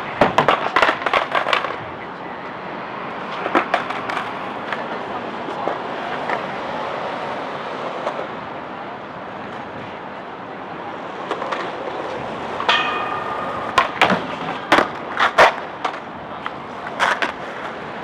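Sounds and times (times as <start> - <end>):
skateboard clacks and scrapes: 0.0 - 8.8, 10.9 - 18.0
skateboard wheels rolling: 0.0 - 18.0.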